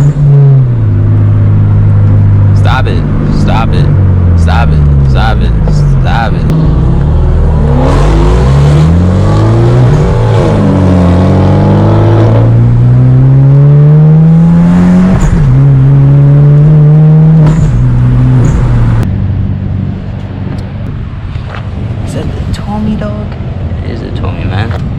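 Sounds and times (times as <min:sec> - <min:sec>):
car exhaust revving: 0:00.0 - 0:21.4.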